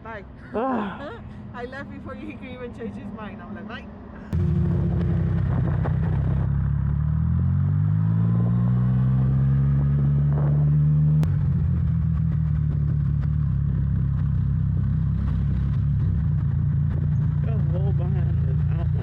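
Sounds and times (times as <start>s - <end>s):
motorcycle engine accelerating: 4.3s - 19.0s.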